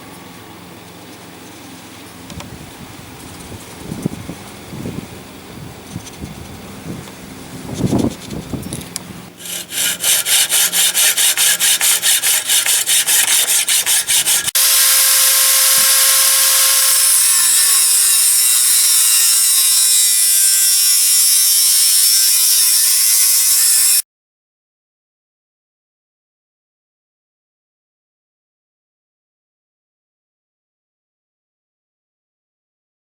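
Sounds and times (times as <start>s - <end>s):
hand saw sawing: 9.4s - 24.0s
power tool whining: 9.4s - 24.0s.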